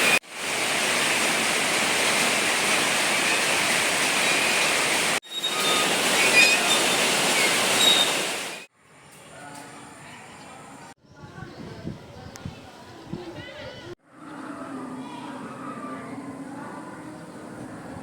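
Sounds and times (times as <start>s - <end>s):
rushing water: 0.0s - 8.7s.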